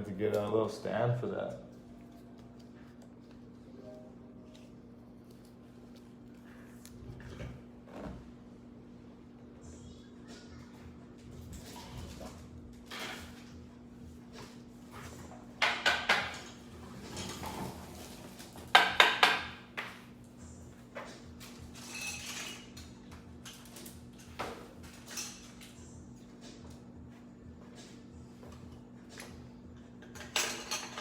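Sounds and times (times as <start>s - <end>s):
faint steady hum: 0.0s - 15.5s.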